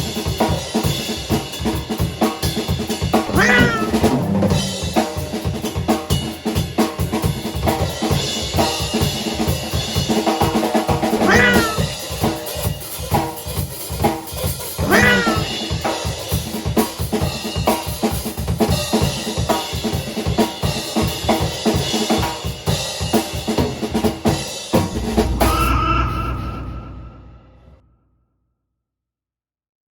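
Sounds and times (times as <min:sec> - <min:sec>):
drum kit beat: 0:00.0 - 0:25.7
cat meowing: 0:03.3 - 0:04.1, 0:11.2 - 0:11.9, 0:14.8 - 0:15.6.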